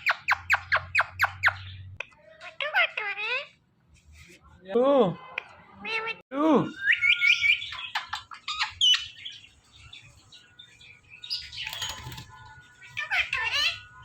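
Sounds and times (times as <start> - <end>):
parrot chirping and whistling: 6.8 - 9.1
parrot squawk: 12.8 - 14.0.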